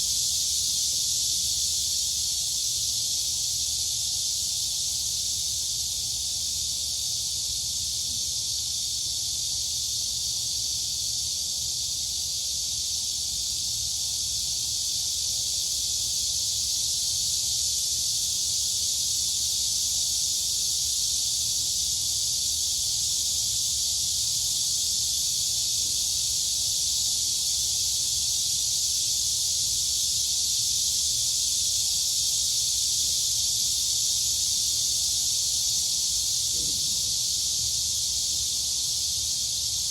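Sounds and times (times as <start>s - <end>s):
crickets and cicadas chorus: 0.0s - 39.9s.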